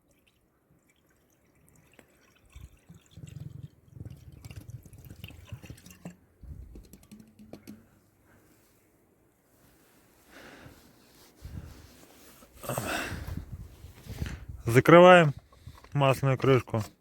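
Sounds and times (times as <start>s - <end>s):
liquid glugging from can: 1.0s - 7.9s.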